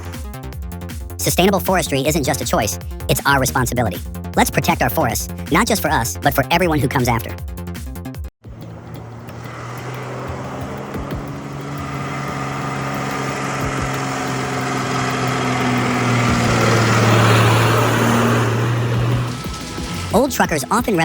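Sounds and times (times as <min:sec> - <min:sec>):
heavy vehicle engine humming: 0:08.4 - 0:20.9.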